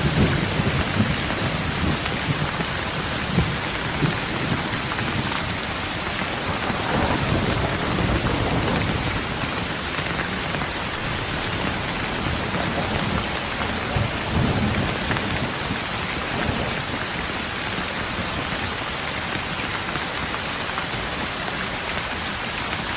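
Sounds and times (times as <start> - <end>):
low rolling thunder: 0.0 - 17.3
rain falling on road: 0.0 - 22.9.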